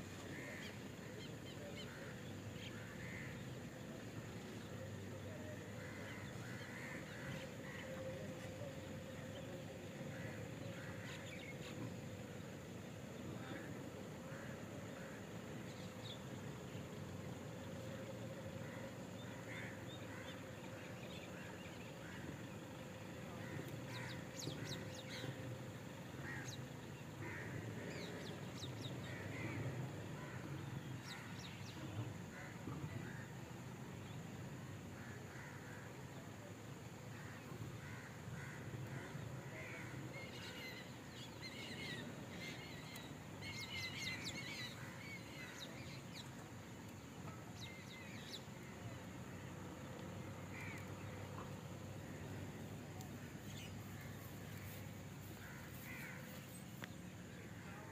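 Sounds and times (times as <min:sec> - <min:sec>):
wild birds calling: 0:00.0 - 0:57.9.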